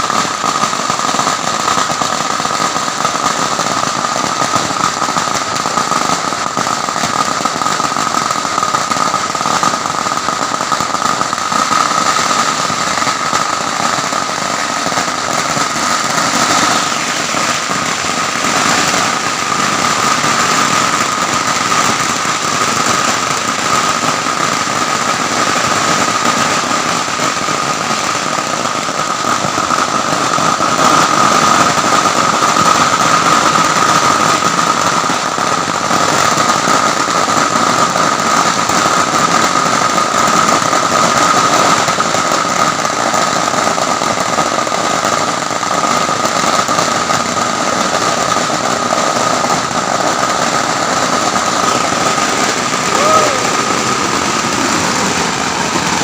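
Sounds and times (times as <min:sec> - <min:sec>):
firecrackers popping rapidly: 0:00.0 - 0:56.0.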